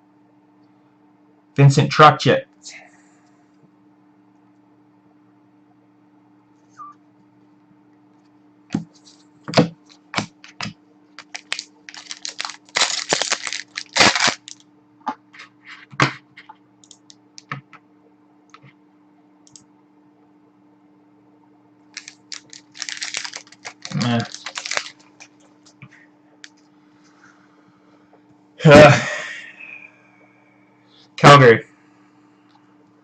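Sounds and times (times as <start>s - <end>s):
faint electrical hum: 0.0s - 33.0s
card packs tearing and rustling: 11.2s - 14.6s, 22.0s - 25.4s.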